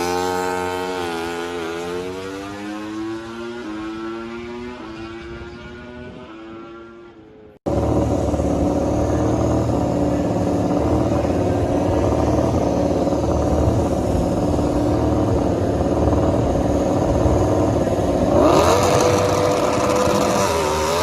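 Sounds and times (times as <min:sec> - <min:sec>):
loud engine at held rpm: 0:00.0 - 0:21.0
race bike passing: 0:00.0 - 0:21.0.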